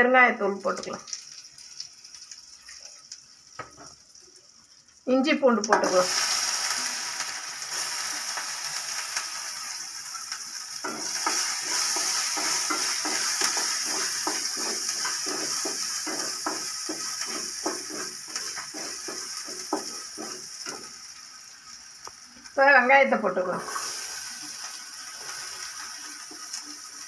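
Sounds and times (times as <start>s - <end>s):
ginger and garlic sizzling in oil: 0.0s - 27.0s
wooden spatula scraping a pan: 10.8s - 21.0s.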